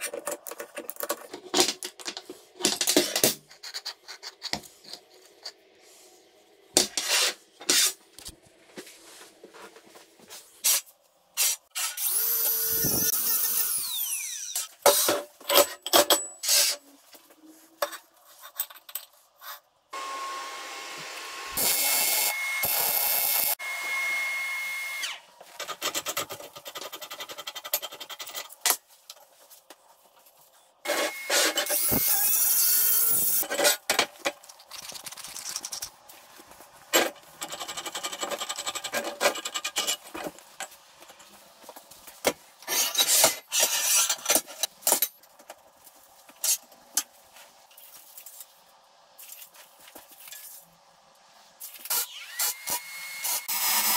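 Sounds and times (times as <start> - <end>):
power tool running: 20.0 - 25.2
scraping and sawing: 42.6 - 44.7.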